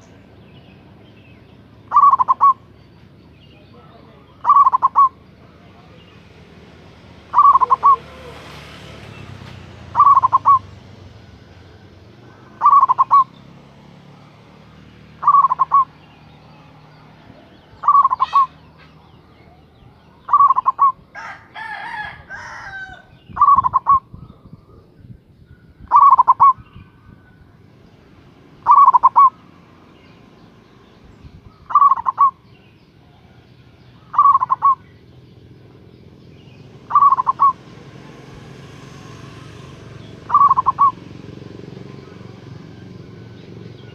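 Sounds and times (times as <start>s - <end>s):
rough bird call: 0.0s - 13.8s, 14.4s - 24.9s, 25.7s - 27.5s, 28.5s - 43.9s
dove cooing: 1.5s - 2.8s, 3.8s - 8.5s, 9.8s - 24.9s, 25.8s - 27.4s, 28.4s - 29.9s, 31.6s - 35.0s, 36.6s - 43.9s.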